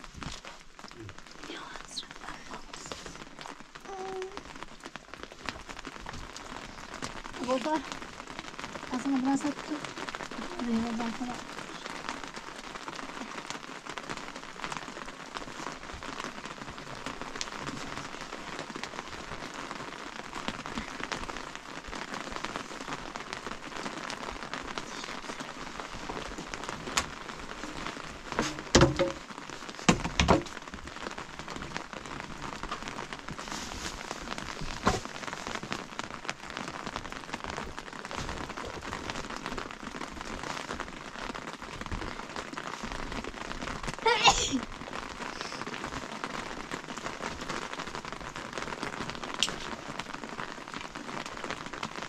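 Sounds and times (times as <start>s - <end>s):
rain pattering: 0.0s - 52.0s
short loud knocks: 28.4s - 29.2s.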